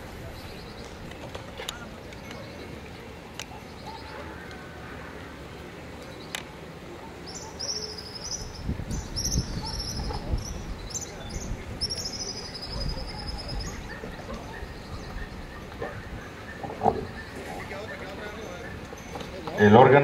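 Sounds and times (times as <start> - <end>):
bird singing trills: 7.3 - 19.4.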